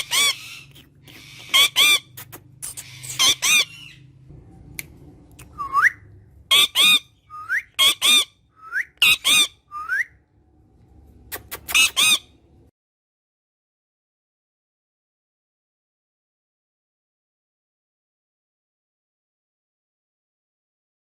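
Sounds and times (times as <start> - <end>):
parrot squawking: 0.0 - 4.2, 5.6 - 10.0, 11.3 - 12.4
short rising whistles: 9.7 - 10.2.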